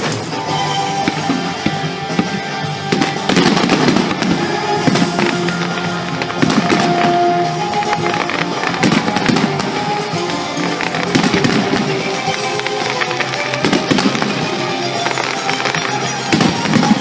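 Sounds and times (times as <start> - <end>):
fireworks bangs and crackling: 0.0 - 17.0
loud music: 0.0 - 17.0.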